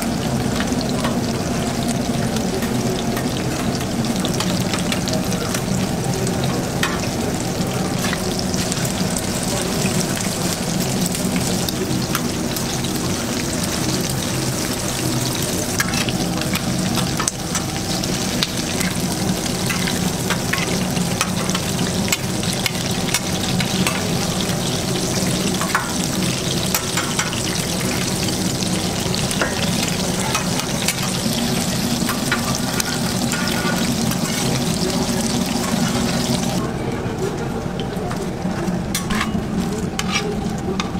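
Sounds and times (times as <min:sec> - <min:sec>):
food sizzling on griddle: 0:00.0 - 0:36.7
metal spatula scraping griddle: 0:15.7 - 0:17.8, 0:18.7 - 0:24.2, 0:29.2 - 0:36.5, 0:38.9 - 0:39.4, 0:40.0 - 0:40.9.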